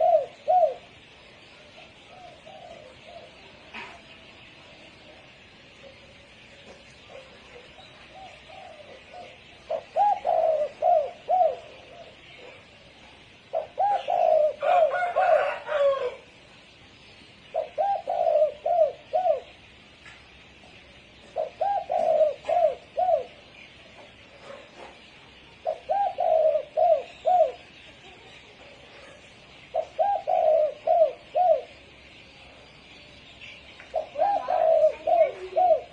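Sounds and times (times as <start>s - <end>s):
dove cooing: 0.0s - 1.0s, 1.6s - 4.1s, 5.7s - 16.3s, 17.5s - 19.6s, 21.2s - 25.0s, 25.6s - 32.0s, 33.9s - 35.9s.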